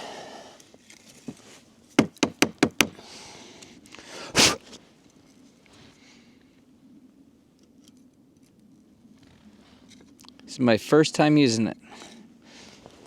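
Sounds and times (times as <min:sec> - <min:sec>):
firewood knocking: 0:02.0 - 0:03.0.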